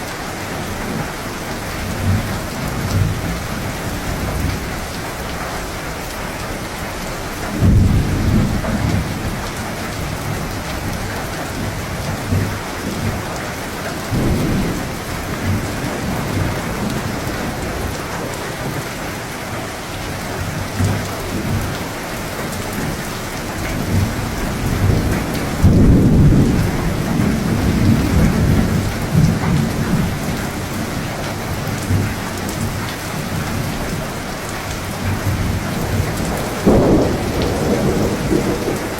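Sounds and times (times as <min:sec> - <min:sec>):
steady rain: 0:00.0 - 0:38.9
rolling thunder: 0:07.4 - 0:13.3, 0:14.0 - 0:21.8, 0:22.7 - 0:33.7, 0:35.0 - 0:38.9.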